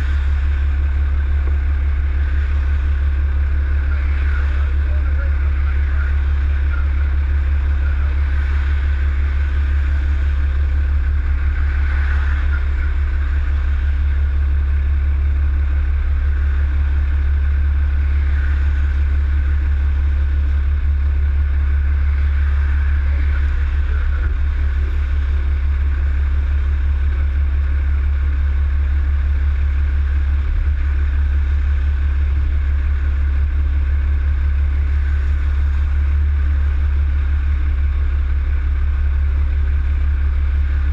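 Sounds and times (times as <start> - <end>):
road noise: 0.0 - 40.9
vehicle engine droning: 0.0 - 40.9.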